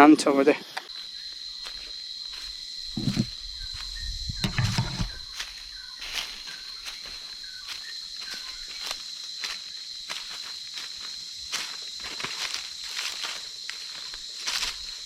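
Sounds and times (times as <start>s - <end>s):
high-pitched insect drone: 0.0s - 15.0s
footsteps on forest ground: 0.8s - 15.0s
dull thumps: 3.0s - 3.3s.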